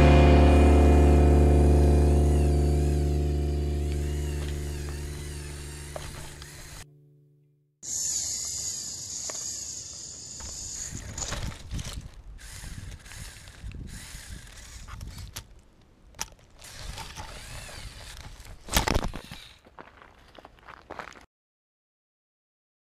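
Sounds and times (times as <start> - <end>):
high whine: 0.0 - 6.9
toy motors whirring: 2.3 - 2.9, 3.8 - 6.8, 7.8 - 15.6, 16.2 - 19.7.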